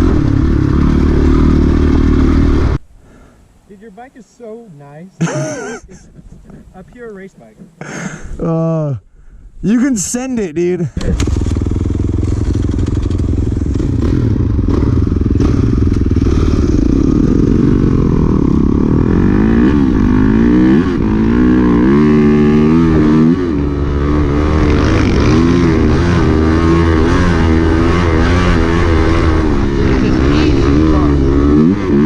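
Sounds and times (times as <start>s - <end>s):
dirt bike engine revving: 0.0s - 2.8s, 11.0s - 32.0s.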